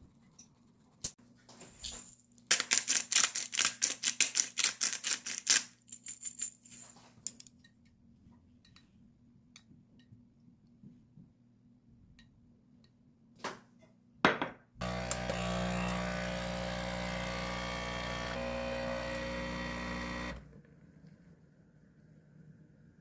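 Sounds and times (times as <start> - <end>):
kitchen appliance motor humming: 14.8 - 20.6.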